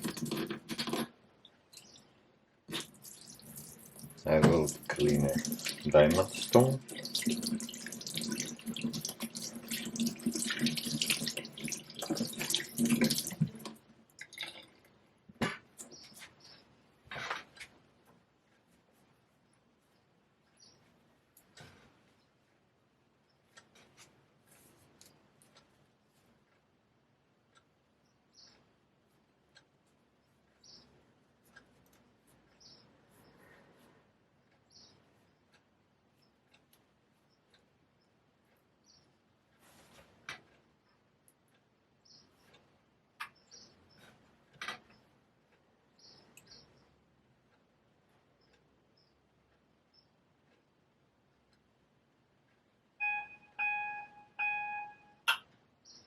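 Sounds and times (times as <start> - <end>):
tap water running over stone: 0.0 - 1.1, 2.7 - 14.6
small knocks and clicks: 39.8 - 46.8.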